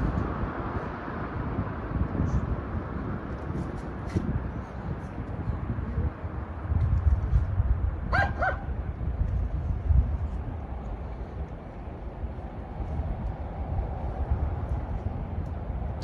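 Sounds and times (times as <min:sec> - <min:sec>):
road traffic rumble: 0:00.0 - 0:16.0
dog barking: 0:08.1 - 0:08.7.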